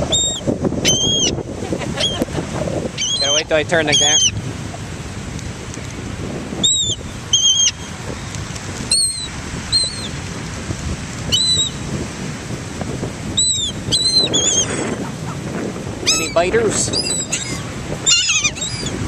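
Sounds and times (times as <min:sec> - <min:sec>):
seagulls calling: 0:00.0 - 0:04.4, 0:06.6 - 0:08.3, 0:08.9 - 0:10.2, 0:11.3 - 0:11.8, 0:13.3 - 0:19.0
surf: 0:00.0 - 0:19.0
wind: 0:00.0 - 0:19.0.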